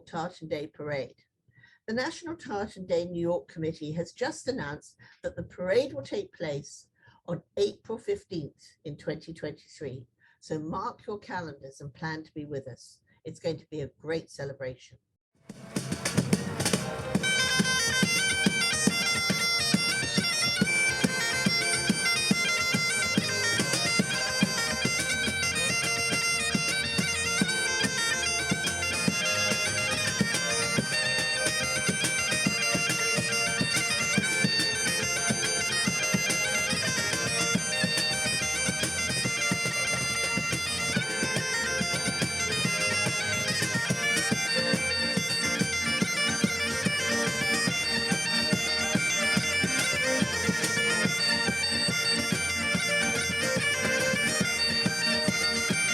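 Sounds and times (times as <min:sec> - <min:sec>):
drums beating: 0:15.5 - 0:55.9
bagpipes playing: 0:15.6 - 0:55.9.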